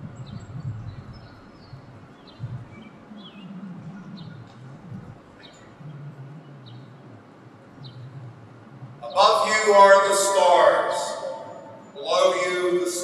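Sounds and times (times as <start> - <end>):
small bird chirping: 0.0 - 9.1
faint low background sound: 0.0 - 13.0.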